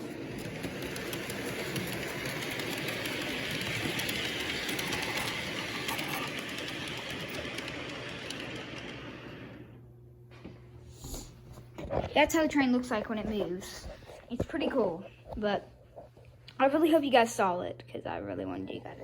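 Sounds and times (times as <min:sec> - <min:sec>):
toy train whirring rattle: 0:00.0 - 0:09.6.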